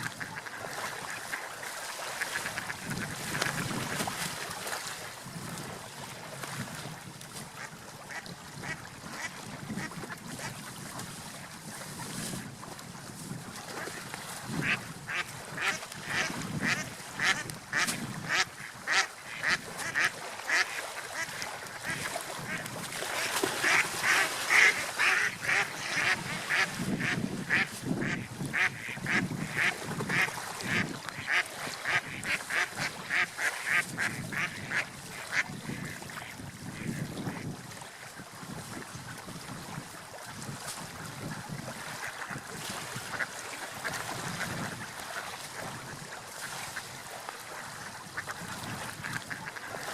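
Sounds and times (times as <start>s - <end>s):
ducks quacking: 0.0s - 3.6s, 7.6s - 10.5s, 14.6s - 37.4s, 48.1s - 49.9s.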